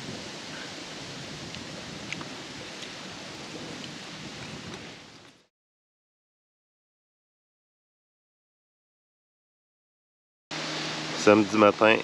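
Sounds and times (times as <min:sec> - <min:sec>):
outdoor rushing hiss: 0:00.0 - 0:05.5, 0:10.5 - 0:12.0.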